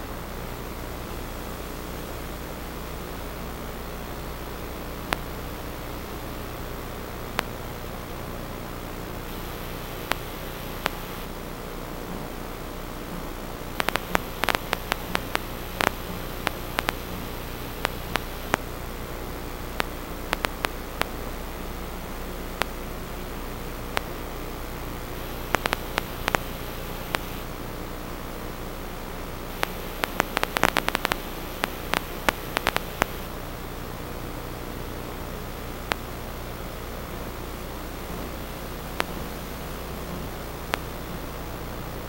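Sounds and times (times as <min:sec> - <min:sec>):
electrical static hiss: 0:00.0 - 0:42.0
faint hum: 0:00.0 - 0:42.0
sharp clicks: 0:09.3 - 0:11.3, 0:13.8 - 0:18.6, 0:19.8 - 0:21.2, 0:25.2 - 0:27.4, 0:29.5 - 0:33.3.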